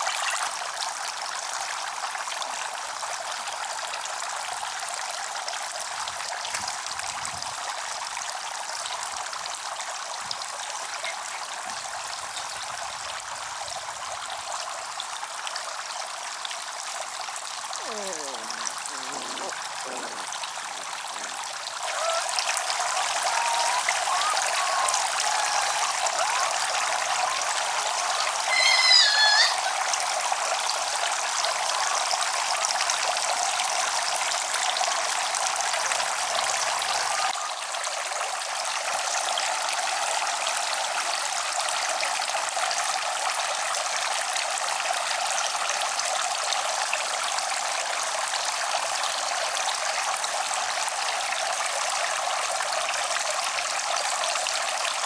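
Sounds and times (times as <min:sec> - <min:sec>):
high wavering cry: 0:21.8 - 0:30.1.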